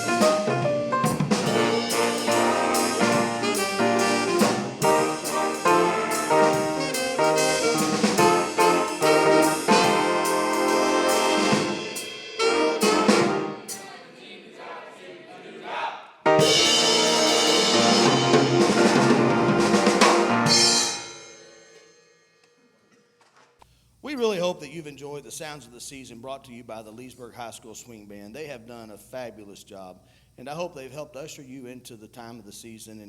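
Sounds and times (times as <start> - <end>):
jazz big band playing: 0.0 - 14.0, 16.3 - 21.3
loud final chord: 1.5 - 13.7, 16.3 - 21.2.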